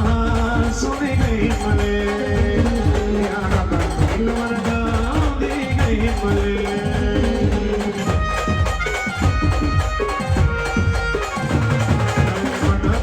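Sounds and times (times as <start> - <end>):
drumming: 0.0 - 13.0
shaken percussion: 0.0 - 13.0
brass band playing: 7.8 - 13.0.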